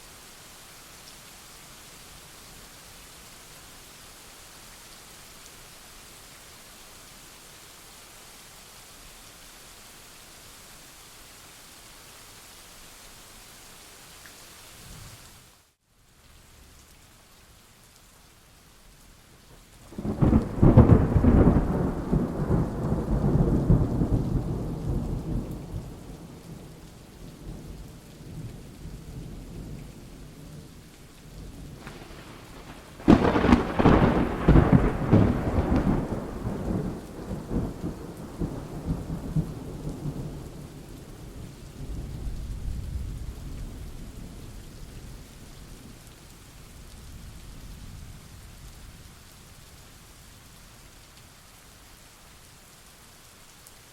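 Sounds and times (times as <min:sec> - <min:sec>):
steady rain: 0:00.0 - 0:53.9
thunder rumbling: 0:19.9 - 0:26.5, 0:31.6 - 0:40.8.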